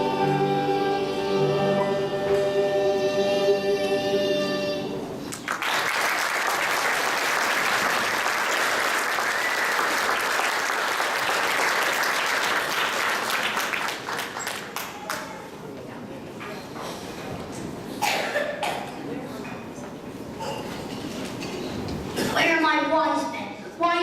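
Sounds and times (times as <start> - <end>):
audience applauding: 5.3 - 15.4.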